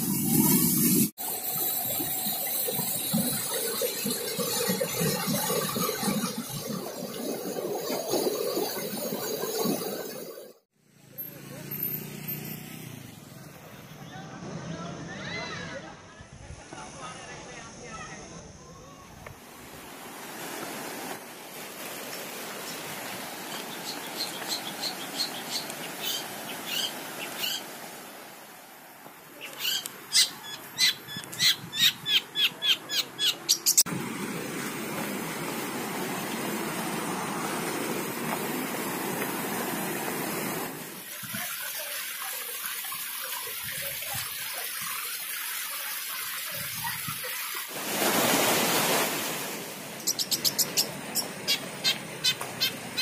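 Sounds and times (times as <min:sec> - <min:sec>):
bird calling: 0:23.5 - 0:27.8, 0:29.4 - 0:33.8, 0:50.0 - 0:53.0.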